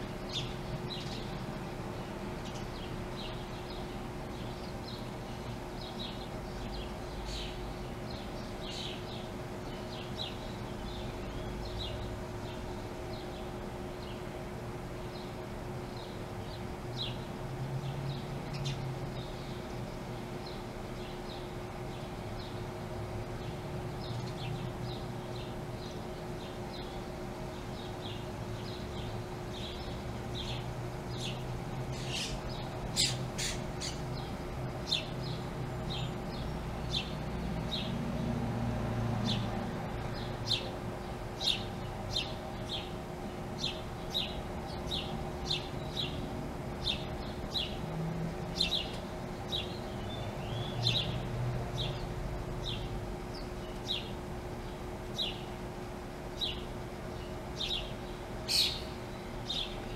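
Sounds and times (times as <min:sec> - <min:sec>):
small birds chirping: 0:00.0 - 0:38.4, 0:39.2 - 0:59.9
passing traffic rumble: 0:21.5 - 0:59.6.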